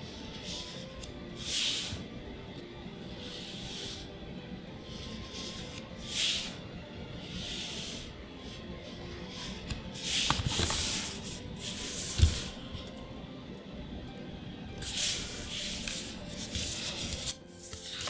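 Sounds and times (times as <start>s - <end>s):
cards and foil swishing: 10.0s - 12.9s, 14.8s - 18.0s.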